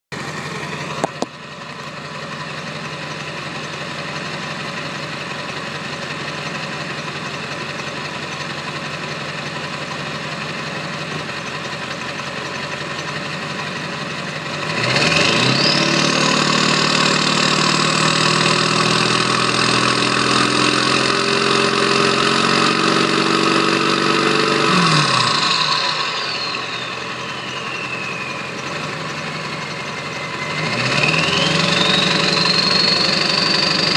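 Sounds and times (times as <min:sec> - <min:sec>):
diesel truck engine idling: 0:00.1 - 0:33.9
turbocharger whistle: 0:14.6 - 0:33.9.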